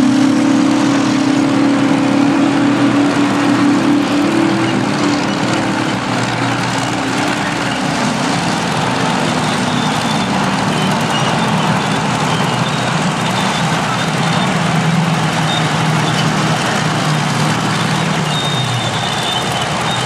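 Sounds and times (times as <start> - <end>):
diesel machinery engine drone: 0.0 - 20.0.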